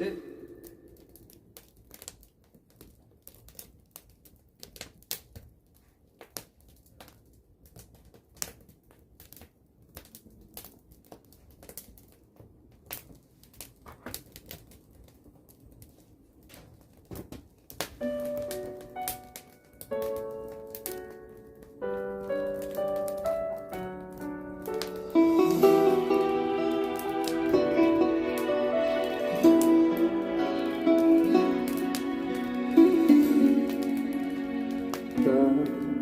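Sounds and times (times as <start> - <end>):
music with keyboard notes: 18.0 - 36.0.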